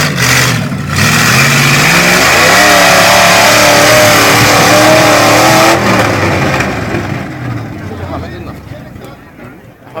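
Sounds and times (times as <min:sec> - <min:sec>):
car engine revving hard: 0:00.0 - 0:07.3.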